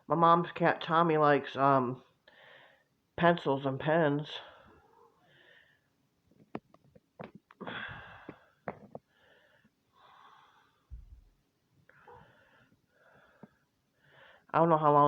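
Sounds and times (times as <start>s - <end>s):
soft breathing: 2.2s - 2.9s, 4.5s - 6.0s, 7.6s - 11.2s, 11.9s - 14.5s.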